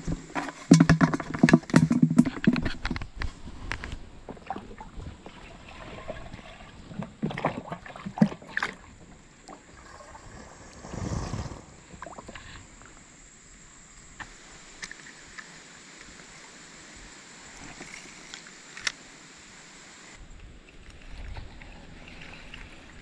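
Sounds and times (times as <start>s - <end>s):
knocks and clicks on kayak: 0.1s - 3.9s.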